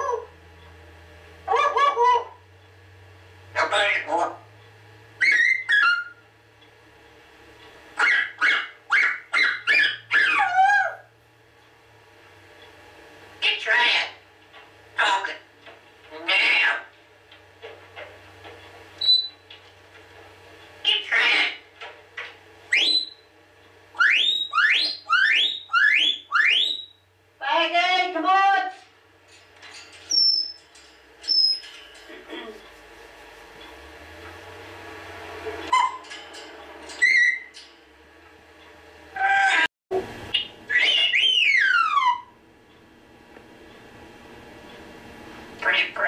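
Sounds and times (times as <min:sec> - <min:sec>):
talking bird calling loudly: 0:01.5 - 0:02.4, 0:05.2 - 0:06.2, 0:08.0 - 0:11.1, 0:20.8 - 0:21.7, 0:22.7 - 0:23.3, 0:23.9 - 0:27.0, 0:40.3 - 0:42.4.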